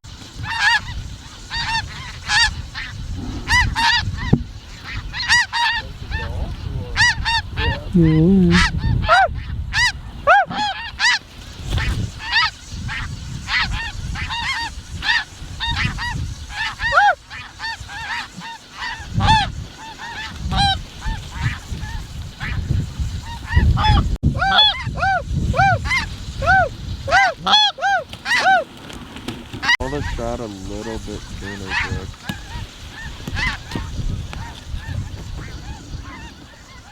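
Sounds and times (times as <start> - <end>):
geese honking: 0.3 - 36.9.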